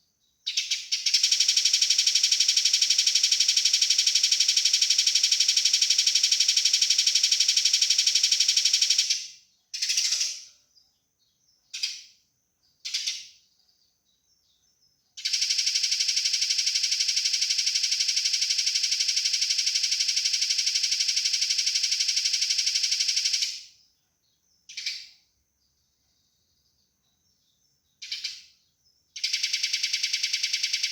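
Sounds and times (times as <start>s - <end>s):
sparrow chirp bursts: 0.4s - 5.8s, 8.5s - 10.6s, 28.0s - 28.6s
sparrows chattering rattle: 0.4s - 10.6s, 27.1s - 30.9s.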